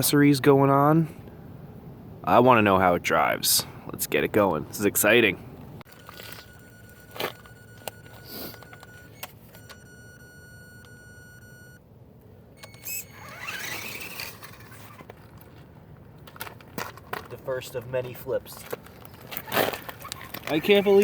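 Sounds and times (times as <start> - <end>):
electric motor whining: 6.0 - 11.8, 12.6 - 15.1.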